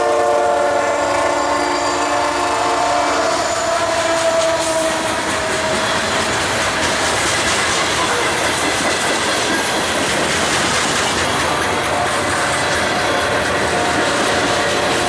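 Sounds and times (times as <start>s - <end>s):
train wheels clattering over rail joints: 4.1s - 15.0s.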